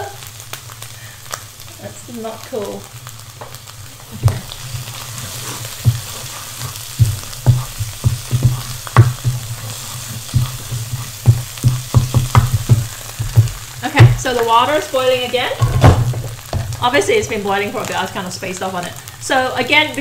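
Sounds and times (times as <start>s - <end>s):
paste sizzling in a pan: 0.0s - 20.0s
wooden spoon knocking and scraping: 4.2s - 14.5s.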